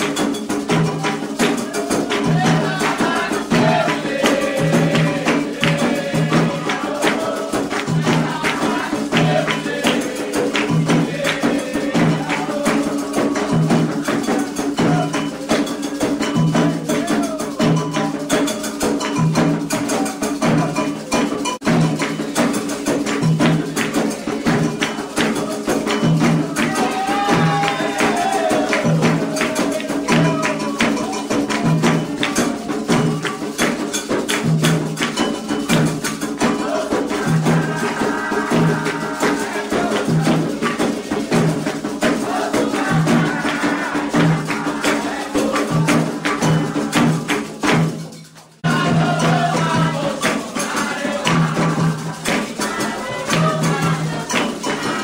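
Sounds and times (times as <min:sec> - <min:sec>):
iron bell rhythm: 0:00.0 - 0:43.3
hand drums playing: 0:00.0 - 0:55.0
voices singing a chant: 0:00.0 - 0:55.0.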